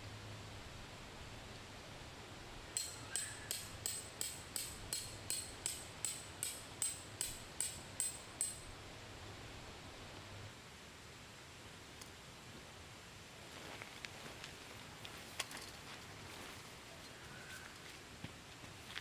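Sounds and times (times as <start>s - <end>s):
hammer striking metal tent stake: 2.8s - 8.7s.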